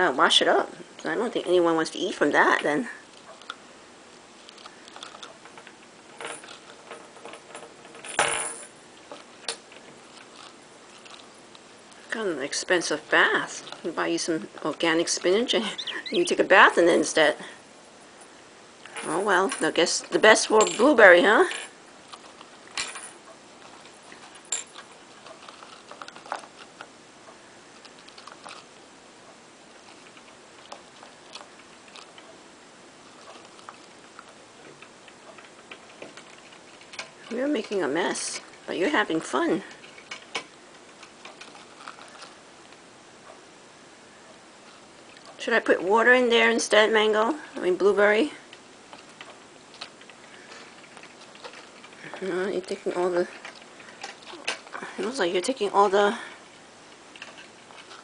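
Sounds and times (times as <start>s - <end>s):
leaves rustling: 8.8s - 43.1s.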